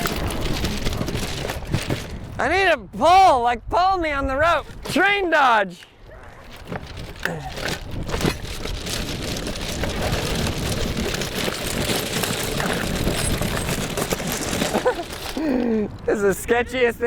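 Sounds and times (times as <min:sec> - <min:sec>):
skateboard rolling over rough ground: 0:00.0 - 0:02.6, 0:06.3 - 0:16.2.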